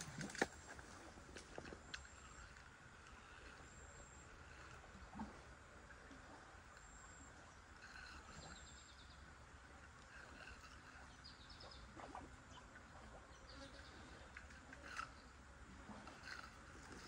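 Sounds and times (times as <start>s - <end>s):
low steady rumble: 0.0s - 17.0s
small birds chirping: 7.7s - 15.4s.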